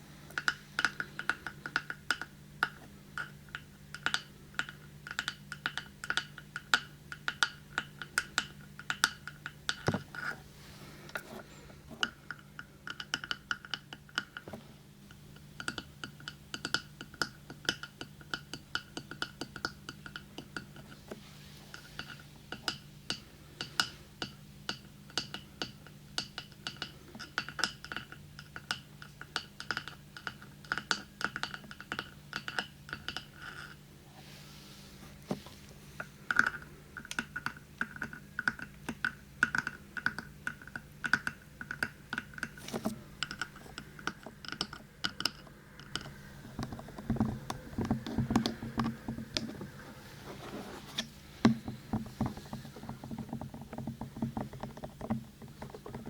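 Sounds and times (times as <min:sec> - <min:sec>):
rubbing and handling sounds: 0:33.6 - 0:36.2, 0:42.5 - 0:44.3, 0:46.1 - 0:56.0.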